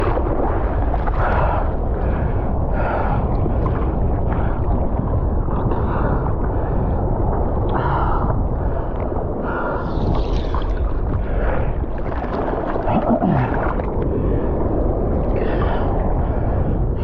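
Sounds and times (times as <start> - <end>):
water splashes: 0.0 - 2.2, 7.6 - 17.0
deep rumble: 0.0 - 17.0
seawater rushing and sloshing: 0.0 - 17.0.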